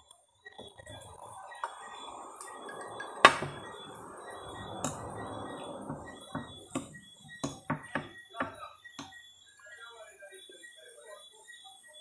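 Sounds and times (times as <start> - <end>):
drink being poured: 0.6 - 8.1.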